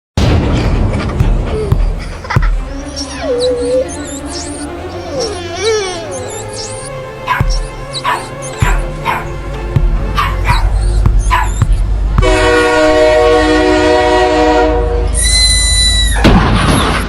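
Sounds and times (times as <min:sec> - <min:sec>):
sudden noisy burst: 0:00.2 - 0:02.9
low rumble: 0:00.2 - 0:03.8
dog barking: 0:01.6 - 0:09.3, 0:10.1 - 0:11.8
multi-tone horn blast: 0:11.8 - 0:16.1.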